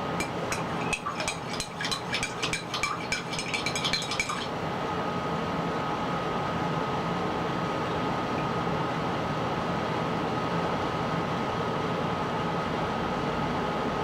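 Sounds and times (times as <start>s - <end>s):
spoon clinking in glass: 0.2s - 4.5s.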